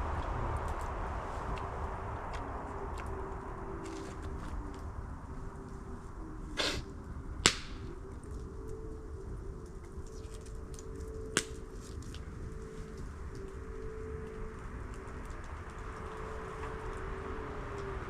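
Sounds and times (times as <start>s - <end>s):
low background rumble: 0.0s - 18.0s
sharp cracks: 7.4s - 7.9s.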